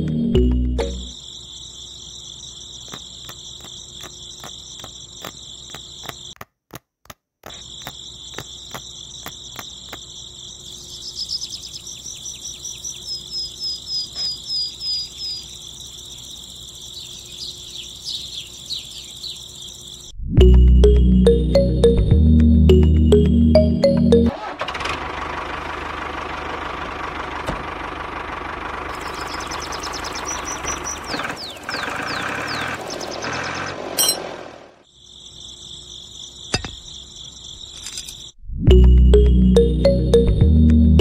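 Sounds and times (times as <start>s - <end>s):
insects chirring: 0.8s - 6.5s, 7.4s - 20.2s, 28.9s - 38.4s.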